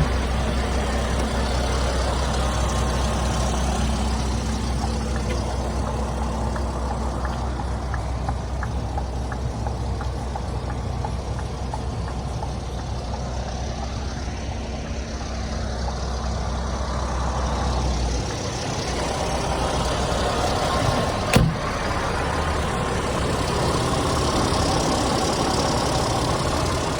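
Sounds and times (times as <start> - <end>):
diesel engine idling: 0.0 - 26.9.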